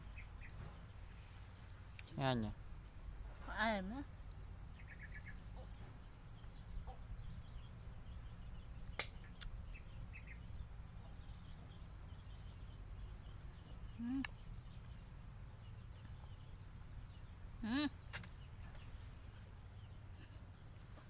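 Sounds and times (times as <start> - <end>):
steady low rumble: 0.0 - 21.0
faint bird clucking: 3.3 - 15.0
sharp clicks: 18.1 - 18.4.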